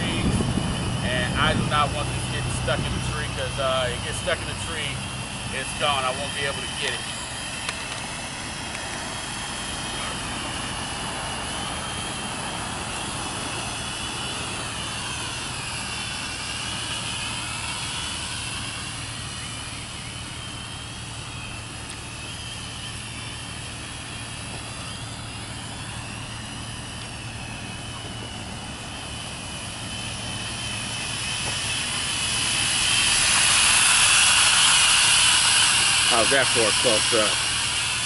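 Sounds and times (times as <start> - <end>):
gusty wind noise: 0.0 - 3.4
drone propellers whining: 0.0 - 38.0.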